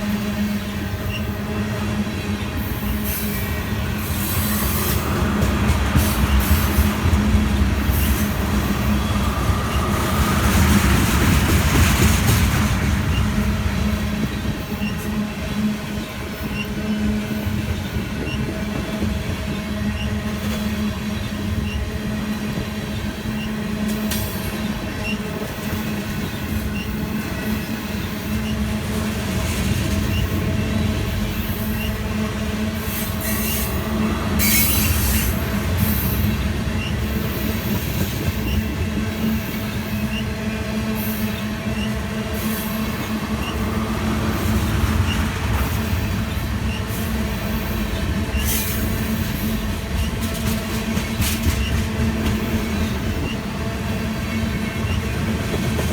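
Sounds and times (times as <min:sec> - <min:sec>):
freight train rolling by: 0:00.0 - 0:55.9
wheels clacking over rails: 0:41.7 - 0:53.4.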